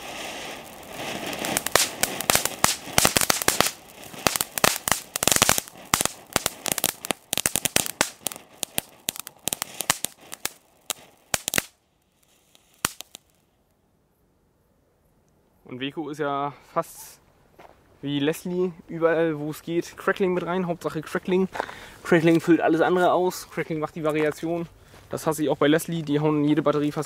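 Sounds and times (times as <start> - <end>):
firework pops and crackles: 0.0 - 13.5.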